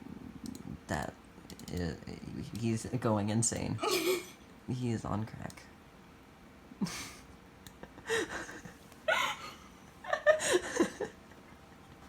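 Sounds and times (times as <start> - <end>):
gasping laughter: 7.8 - 11.2.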